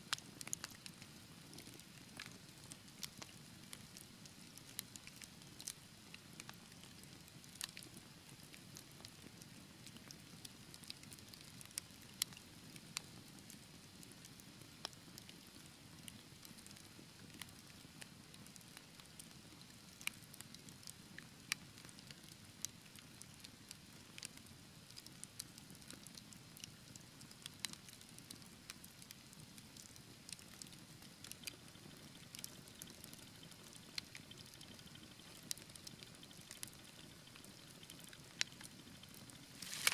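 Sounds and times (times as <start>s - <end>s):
wood fire crackling: 30.3s - 39.9s.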